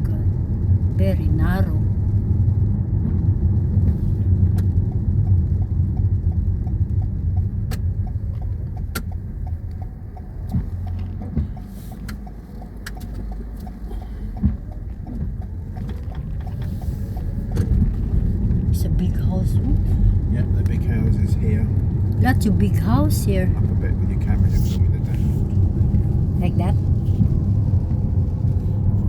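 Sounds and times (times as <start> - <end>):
engine and tyre rumble: 0.0 - 29.0
faint clicks: 4.5 - 18.3.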